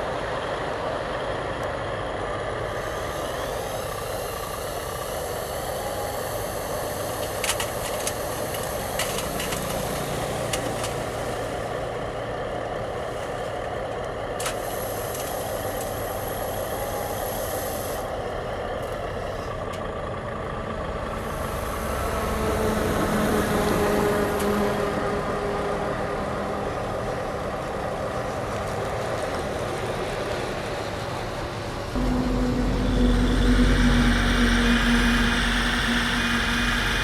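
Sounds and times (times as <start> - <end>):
model truck engine drone: 0.0 - 37.0
high steady whine: 31.7 - 37.0.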